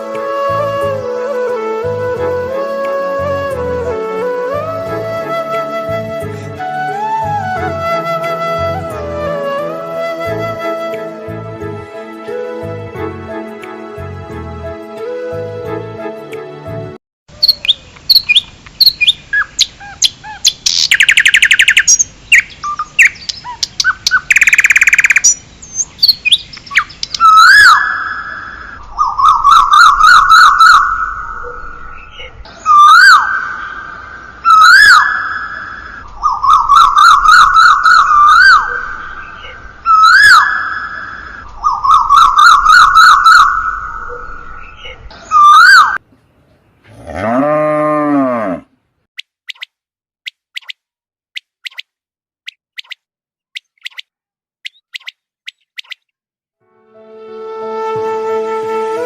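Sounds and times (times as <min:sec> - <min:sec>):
songbirds chirping: 0:17.3 - 0:48.5
bird trills: 0:17.4 - 0:33.8, 0:34.5 - 0:45.9, 0:49.2 - 0:49.7, 0:50.3 - 0:50.8, 0:51.4 - 0:51.9, 0:52.5 - 0:53.0, 0:53.6 - 0:56.1
bird whistles over buzzy warble: 0:53.6 - 0:56.1.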